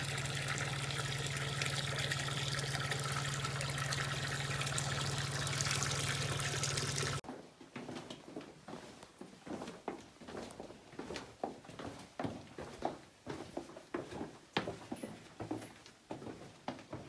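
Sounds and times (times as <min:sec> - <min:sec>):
low steady hum: 0:00.0 - 0:07.2
running trickling water: 0:00.0 - 0:07.2.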